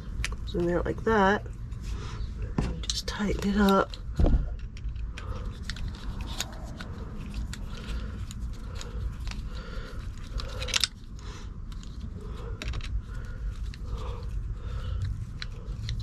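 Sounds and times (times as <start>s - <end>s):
steady low rumble: 0.0s - 16.0s
hand tool clicking and scraping: 2.8s - 13.0s.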